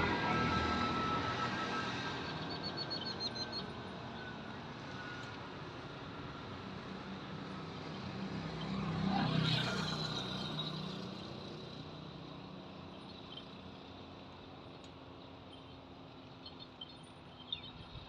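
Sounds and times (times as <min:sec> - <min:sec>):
vehicle engine passing by: 0:00.0 - 0:03.9.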